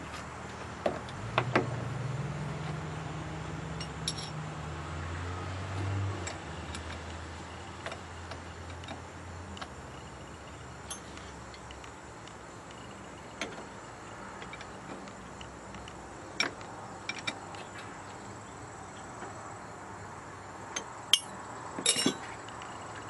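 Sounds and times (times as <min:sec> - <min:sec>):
sharp metal clinks: 0:03.8 - 0:04.4, 0:21.1 - 0:22.2.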